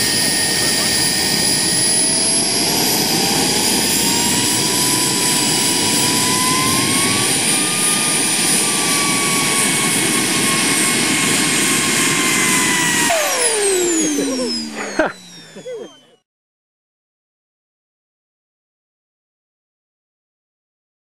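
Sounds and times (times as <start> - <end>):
model jet engine whine: 0.0 - 16.2.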